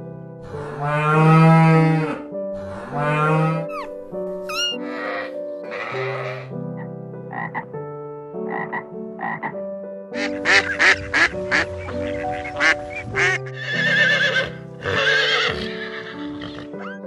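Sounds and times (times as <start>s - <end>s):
tree frog croaking: 3.1s - 7.7s, 8.4s - 9.6s, 10.2s - 15.7s
ducks quacking: 8.5s - 9.6s, 10.2s - 17.0s.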